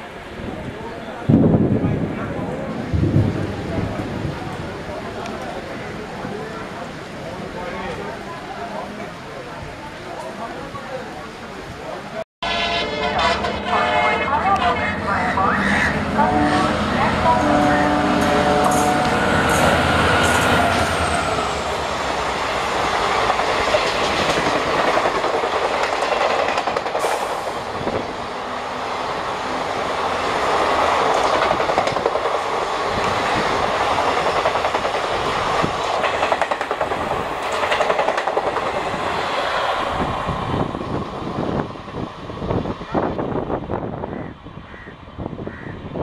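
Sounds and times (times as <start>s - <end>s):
express train passing: 0.0s - 46.0s
wheel clatter over rail joints: 33.8s - 38.9s.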